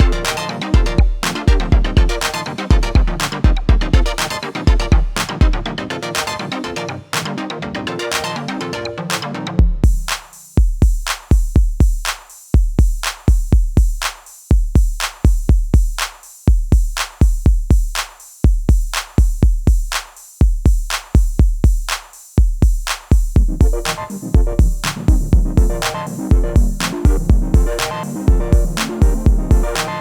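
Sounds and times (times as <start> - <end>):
drum machine beat: 0.0 - 6.5, 9.1 - 30.0
electronic music: 0.0 - 10.4, 23.3 - 30.0.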